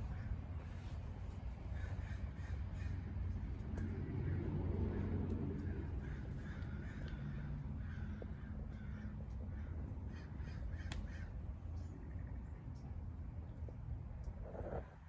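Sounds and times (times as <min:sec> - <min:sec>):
low steady rumble: 0:00.0 - 0:15.0
crows cawing: 0:01.7 - 0:11.4.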